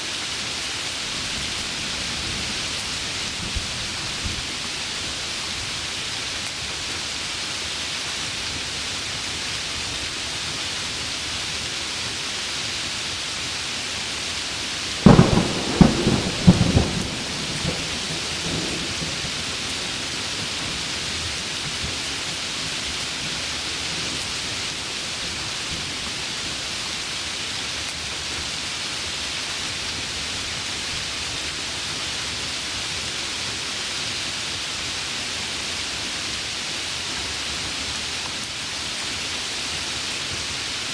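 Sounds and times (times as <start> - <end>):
heavy rain falling: 0.0 - 40.9
thunderclap rumbling: 15.0 - 20.8.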